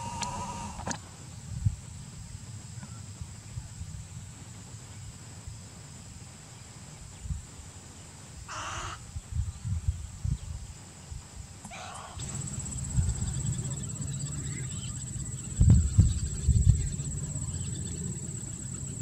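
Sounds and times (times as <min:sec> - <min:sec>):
harsh bird calls: 0:00.0 - 0:00.9, 0:08.5 - 0:09.0, 0:11.6 - 0:19.0
low wind rumble on microphone: 0:00.0 - 0:06.2, 0:06.8 - 0:07.8, 0:08.8 - 0:11.6, 0:12.2 - 0:19.0
high pulsing insect buzz: 0:11.7 - 0:19.0.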